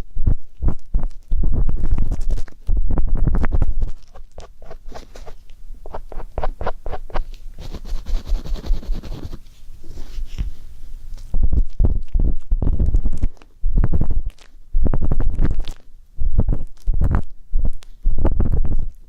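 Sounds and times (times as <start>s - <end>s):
ear pick scraping microphone: 1.4s - 10.6s.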